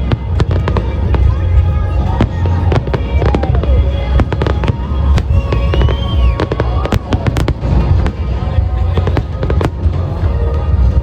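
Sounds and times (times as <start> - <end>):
continuous low rumble: 0.0 - 11.0
fireworks bursting and crackling: 0.0 - 11.0
music playing: 0.0 - 11.0.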